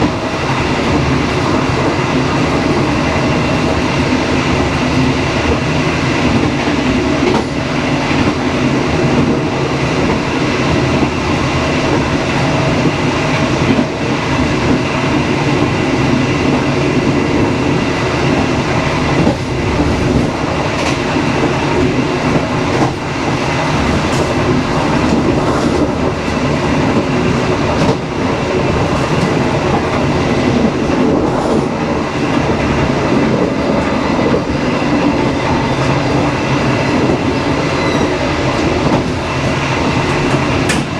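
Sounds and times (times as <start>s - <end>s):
train rumbling: 0.0s - 40.9s
wheels clacking over rail joints: 18.1s - 34.5s.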